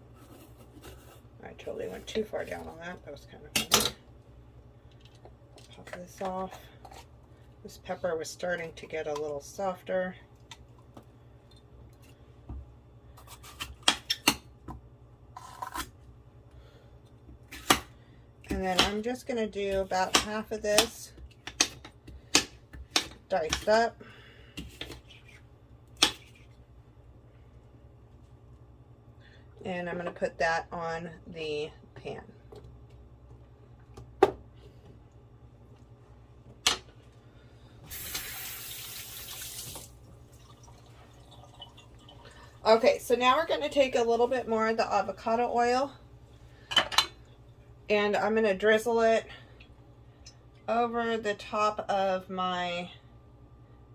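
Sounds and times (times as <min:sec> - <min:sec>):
knife cutting a pepper: 0:15.4 - 0:16.0
kitchen faucet running: 0:37.9 - 0:42.4.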